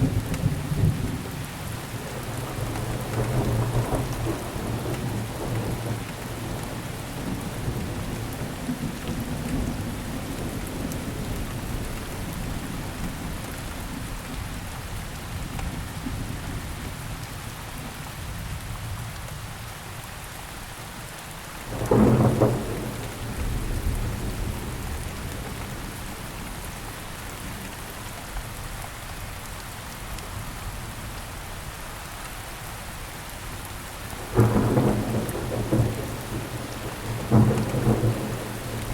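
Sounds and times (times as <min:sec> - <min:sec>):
steady rain: 0:00.0 - 0:38.9
low thunder rumbling: 0:02.0 - 0:13.4, 0:21.7 - 0:27.7, 0:34.2 - 0:38.9
thunder clap: 0:21.7 - 0:25.9, 0:34.3 - 0:38.9.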